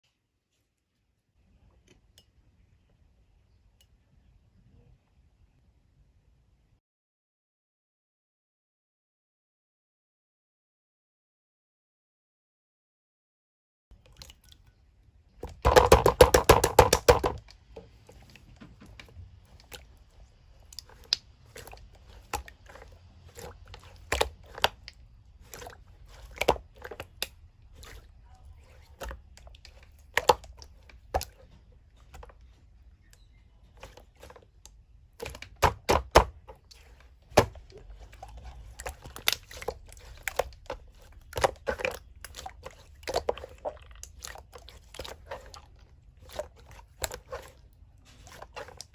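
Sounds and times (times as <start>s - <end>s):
slime squished by hand: 15.4s - 32.3s, 33.7s - 48.9s.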